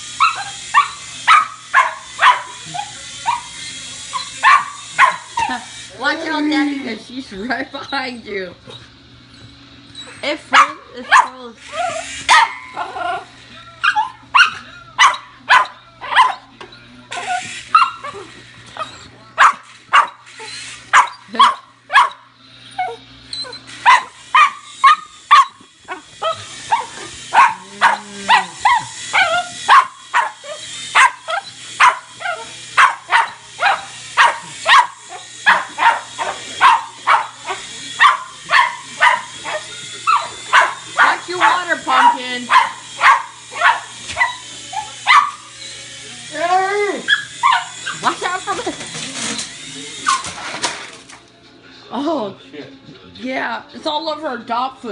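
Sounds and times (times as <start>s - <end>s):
dog barking: 0.2s - 3.5s, 4.4s - 5.6s, 10.5s - 11.4s, 12.3s - 12.8s, 13.8s - 16.5s, 17.7s - 18.2s, 19.4s - 20.3s, 20.9s - 22.3s, 23.8s - 45.5s, 47.1s - 48.0s.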